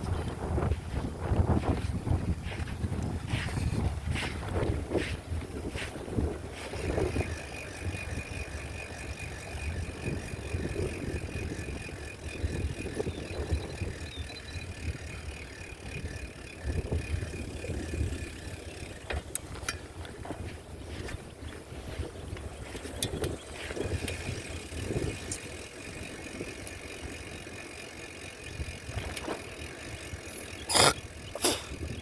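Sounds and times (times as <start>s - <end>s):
bicycle rattling: 0.0s - 32.0s
wind rumbling on microphone: 0.0s - 32.0s
sharp clicks: 22.8s - 32.0s.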